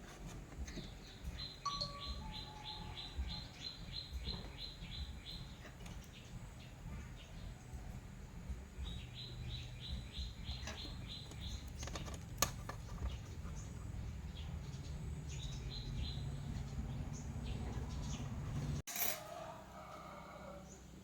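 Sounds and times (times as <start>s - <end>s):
bird chirping: 0.2s - 18.8s.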